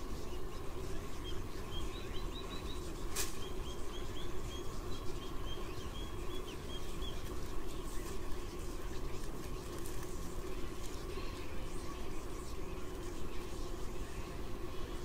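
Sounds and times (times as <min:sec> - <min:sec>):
steady hiss and hum: 0:00.0 - 0:15.0
bird chirping: 0:00.2 - 0:09.3.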